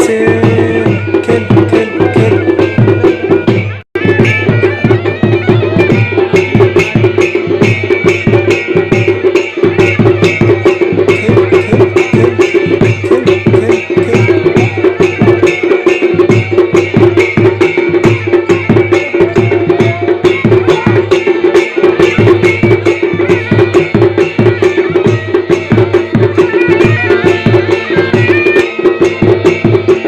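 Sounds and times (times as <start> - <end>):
folk drums playing: 0.0 - 30.0
held pipe tone: 0.0 - 30.0.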